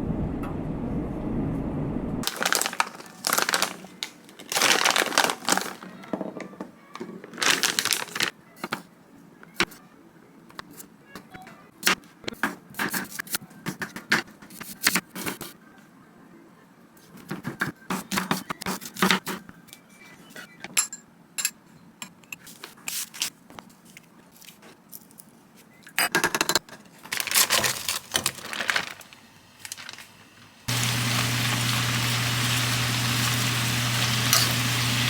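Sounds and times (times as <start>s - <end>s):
objects clicking and scraping: 20.7s - 30.2s.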